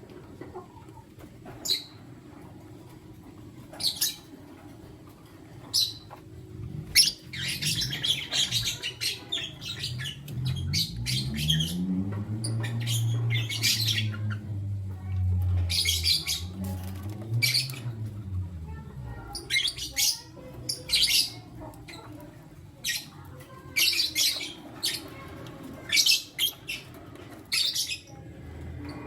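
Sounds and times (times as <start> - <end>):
lovebirds chirping: 5.7 - 28.2
low hum: 9.8 - 19.9.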